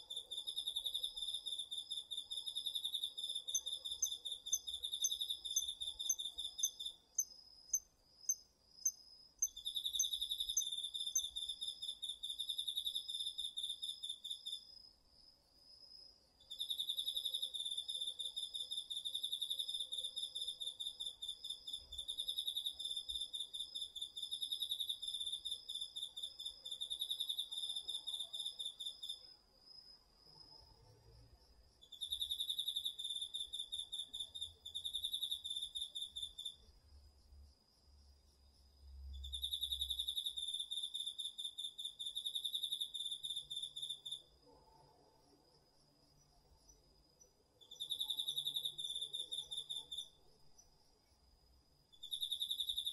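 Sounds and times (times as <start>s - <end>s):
cricket pulsing trills: 0.0s - 14.8s, 16.4s - 52.9s
insect short sharp chirps: 0.2s - 14.6s, 51.9s - 52.9s.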